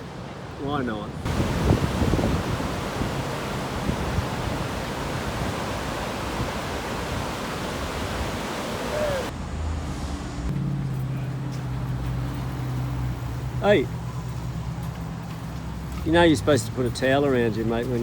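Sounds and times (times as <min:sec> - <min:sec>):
surf rushing: 0:01.2 - 0:09.3
wind noise: 0:01.2 - 0:09.3.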